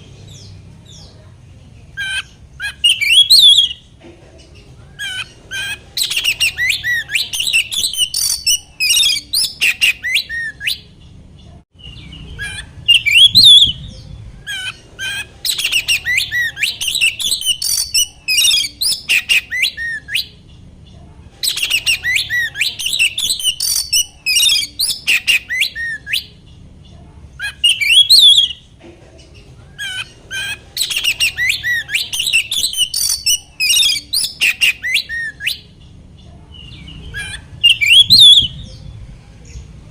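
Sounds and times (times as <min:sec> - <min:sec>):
magpie-robin singing whistles: 0:02.0 - 0:03.8, 0:05.0 - 0:10.8, 0:11.8 - 0:20.4, 0:21.4 - 0:26.3, 0:27.4 - 0:28.6, 0:30.4 - 0:35.7, 0:36.6 - 0:38.9.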